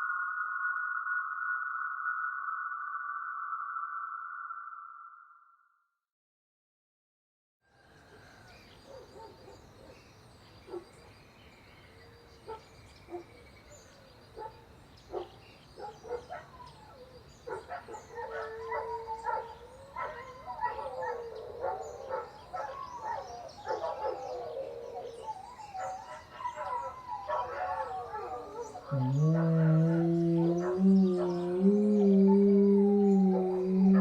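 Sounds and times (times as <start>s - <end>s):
gliding animal calls: 28.9s - 34.0s.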